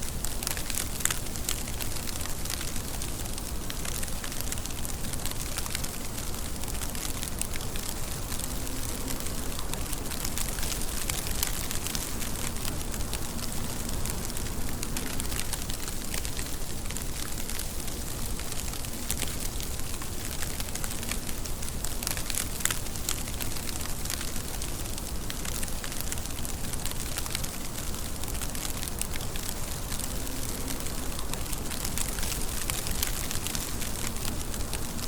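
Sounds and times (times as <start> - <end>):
rain falling: 0.0 - 35.0
raindrops ticking on a surface: 0.0 - 35.0.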